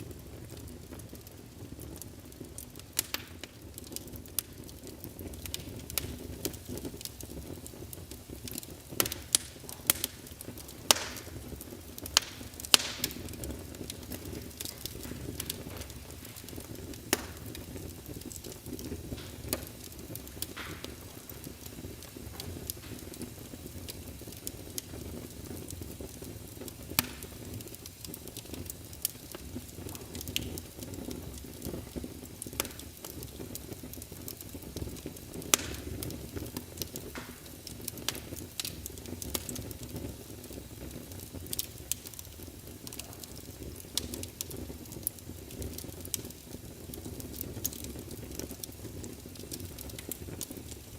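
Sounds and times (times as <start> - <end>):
burning wood rumble: 0.0 - 50.9
fire pops and snaps: 0.0 - 50.9.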